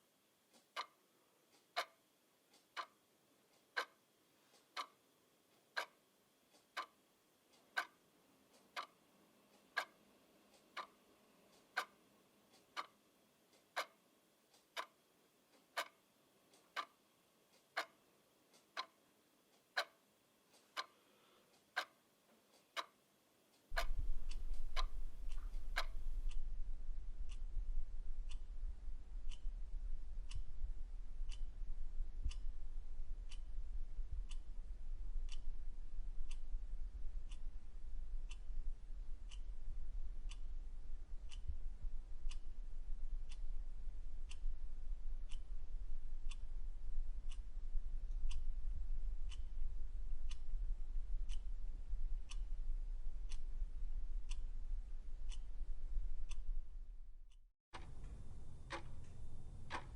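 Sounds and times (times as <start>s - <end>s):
mechanical clock ticking: 0.4s - 21.0s, 21.6s - 22.0s, 22.6s - 23.0s, 23.6s - 59.9s
steady low hum: 23.7s - 59.9s.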